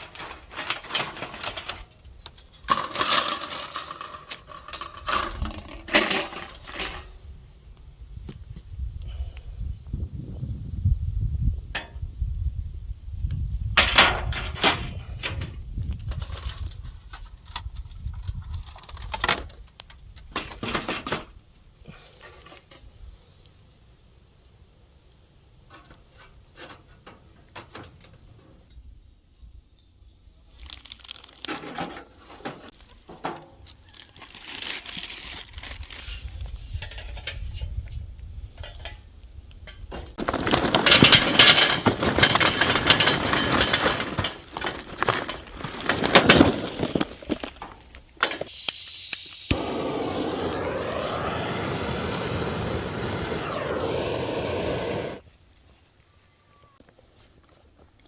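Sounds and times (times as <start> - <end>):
rustling and crinkling packaging: 0.0 - 7.1, 30.4 - 37.1, 40.1 - 48.5.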